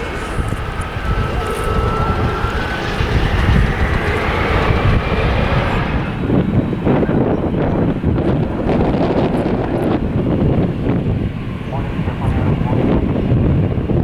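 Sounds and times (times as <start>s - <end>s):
faint whine rising in pitch: 0.0s - 8.4s
jet engines running: 0.0s - 14.0s
wind buffeting microphone: 0.0s - 14.0s.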